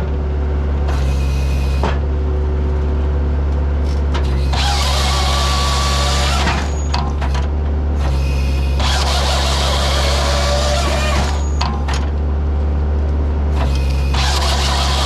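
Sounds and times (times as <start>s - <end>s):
diesel engine running: 0.0s - 15.0s
saw bar cutting log: 4.2s - 7.2s, 8.0s - 12.0s, 13.6s - 15.0s.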